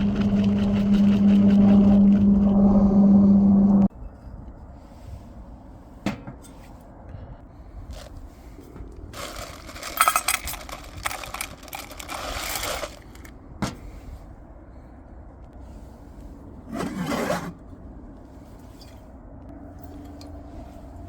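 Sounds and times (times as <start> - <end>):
tableware clinking and scraping: 9.2 - 13.3.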